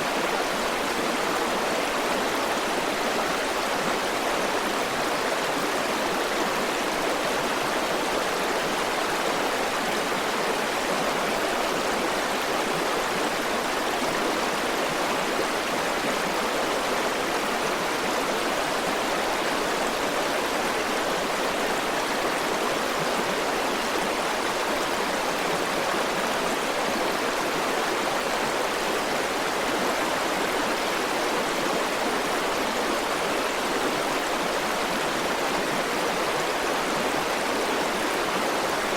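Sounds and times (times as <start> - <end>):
river water rushing over rocks: 0.0 - 38.9.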